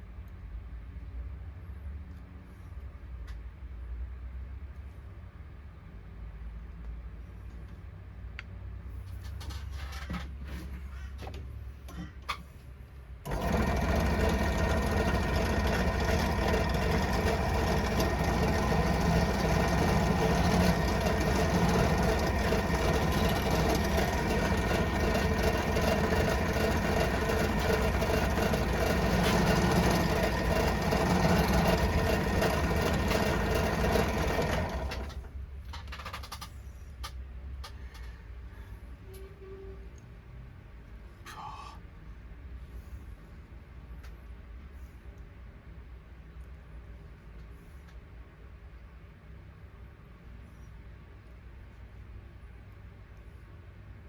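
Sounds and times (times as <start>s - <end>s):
electric motor tool whining: 13.3s - 35.2s.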